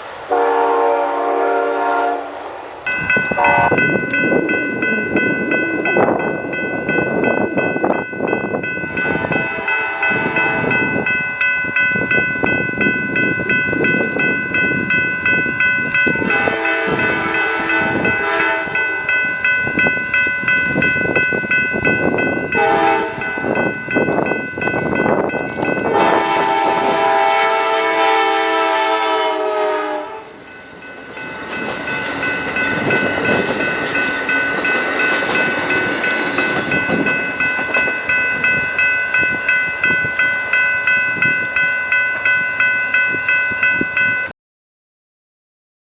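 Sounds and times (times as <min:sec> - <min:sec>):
train rumbling and clattering: 0:00.0 - 0:44.3
train air horn blasts: 0:00.3 - 0:02.4, 0:03.4 - 0:03.8, 0:09.0 - 0:10.8, 0:16.2 - 0:19.0, 0:22.6 - 0:23.2, 0:25.8 - 0:30.3
crossing bell ringing: 0:00.4 - 0:44.3.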